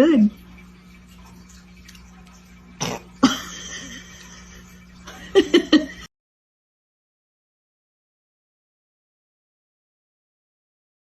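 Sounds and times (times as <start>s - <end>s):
faint steady hum: 0.0s - 6.1s.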